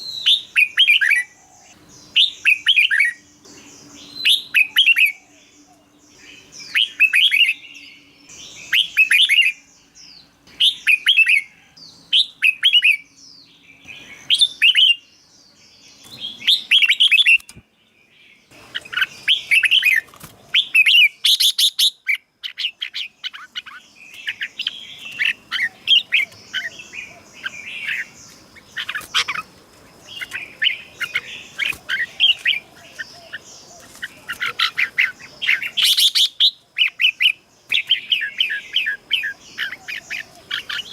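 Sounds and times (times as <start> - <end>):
bulbul singing whistled notes: 2.0 - 9.7.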